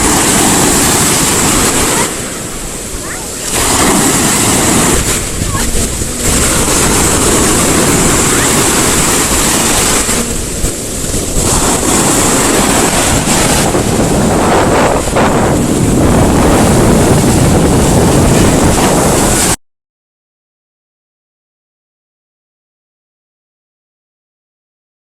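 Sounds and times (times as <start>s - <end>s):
surf breaking on the shore: 0.0s - 19.6s
wind buffeting the microphone: 0.0s - 19.6s.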